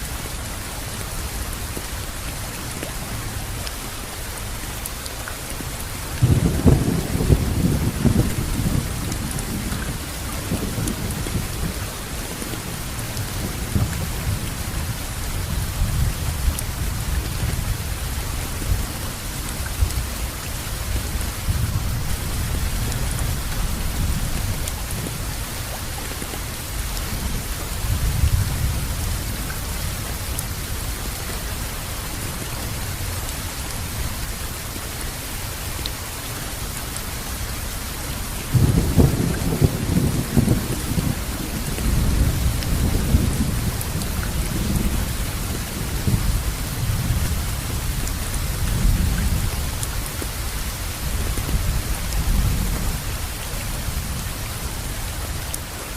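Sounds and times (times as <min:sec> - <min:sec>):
steady rainfall: 0:00.0 - 0:55.9
low rumbling thunder: 0:06.2 - 0:19.2, 0:38.5 - 0:49.8.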